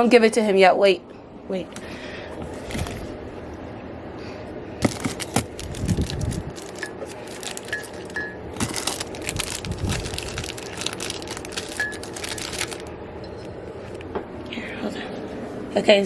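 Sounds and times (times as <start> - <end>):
packaging crinkling: 1.8 - 3.2, 4.8 - 12.9.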